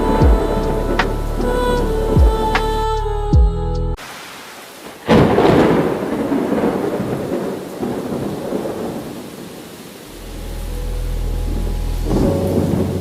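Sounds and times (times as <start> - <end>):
thunderclap rumbling: 0.0 - 2.8, 4.8 - 13.0
steady rainfall: 4.0 - 13.0
music with falling tone: 10.2 - 13.0.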